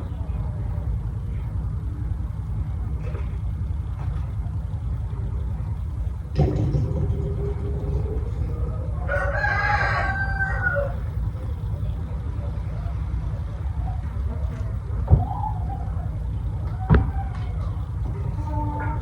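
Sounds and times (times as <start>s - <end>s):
low rumble: 0.6s - 19.0s
rooster crowing: 8.0s - 11.3s.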